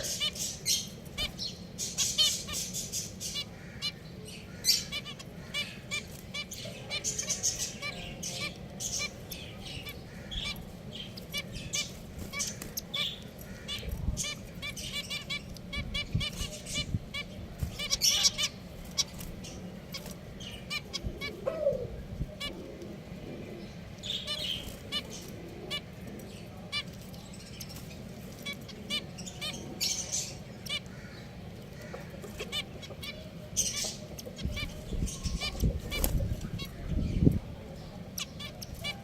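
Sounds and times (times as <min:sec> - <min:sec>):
finches chirping: 0:00.0 - 0:22.6
low background hum: 0:00.0 - 0:39.0.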